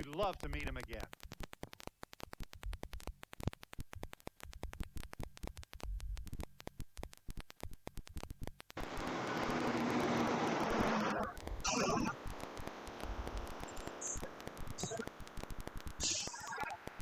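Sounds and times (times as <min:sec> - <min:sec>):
rapid crackling clicks: 0:00.0 - 0:17.0
loud static hiss: 0:08.8 - 0:17.0.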